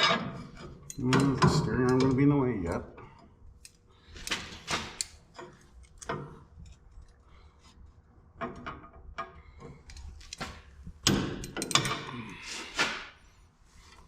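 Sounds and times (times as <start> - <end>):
metal parts clicking and knocking: 0.0 - 2.3, 3.1 - 7.2, 8.4 - 12.3.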